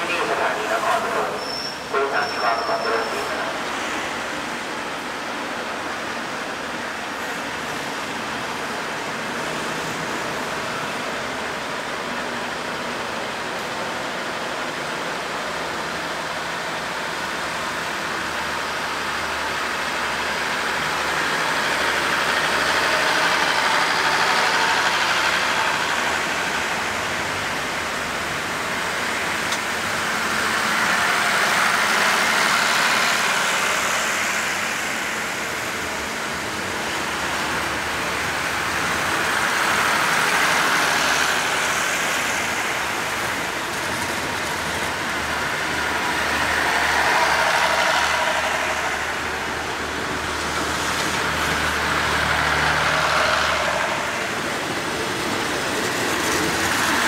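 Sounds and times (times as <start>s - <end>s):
diesel train engine running: 0.0s - 57.0s.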